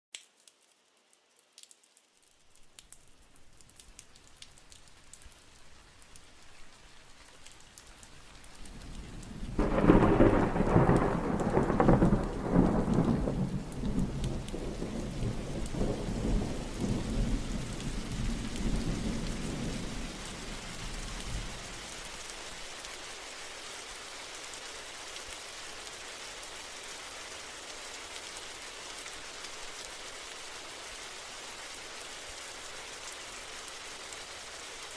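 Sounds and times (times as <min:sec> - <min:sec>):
steady rain: 0:00.1 - 0:34.9
thunder rolling: 0:09.0 - 0:20.0.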